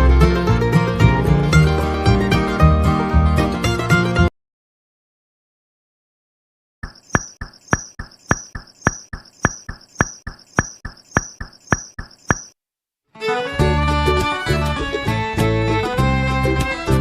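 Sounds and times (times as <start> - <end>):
rapid sharp tapping: 6.8 - 12.6.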